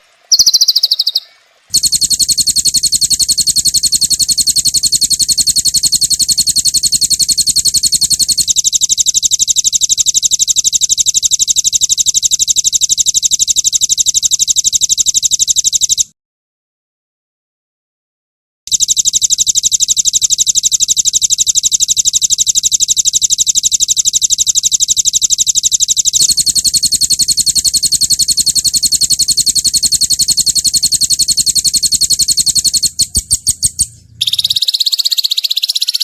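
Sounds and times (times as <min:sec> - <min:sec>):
songbird rapid high notes: 0:26.2 - 0:36.0.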